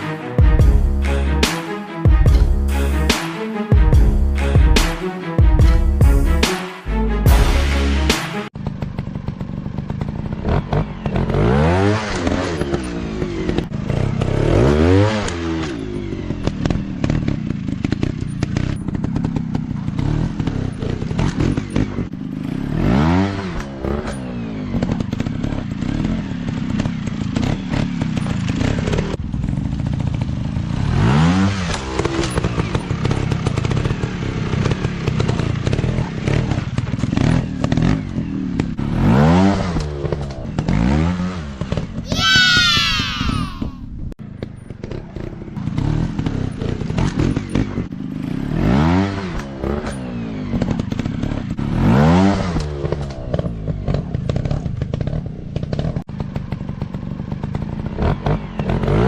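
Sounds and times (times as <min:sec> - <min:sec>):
dirt bike engines revving: 0:30.6 - 0:43.8.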